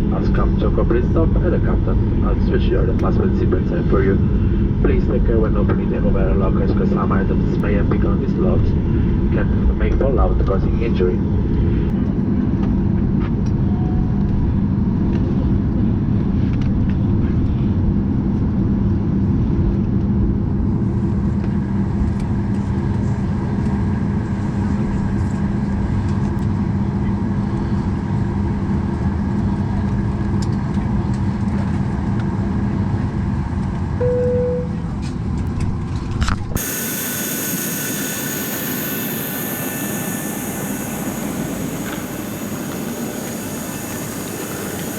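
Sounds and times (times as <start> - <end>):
aircraft cabin rumble: 0.0 - 44.9
jet engines idling hum: 0.0 - 44.9.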